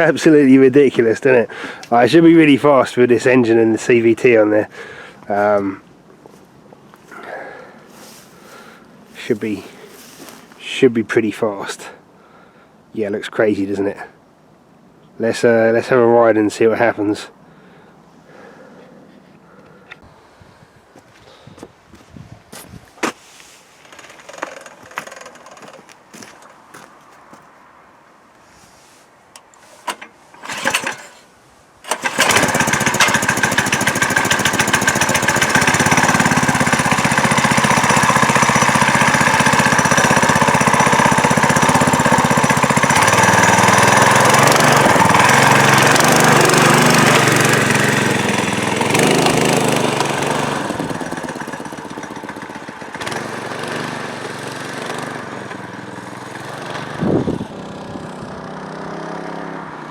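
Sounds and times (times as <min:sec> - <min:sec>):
knocks and clatters: 0:23.9 - 0:25.9
minibike engine revving: 0:29.8 - 0:31.2, 0:31.9 - 0:59.9.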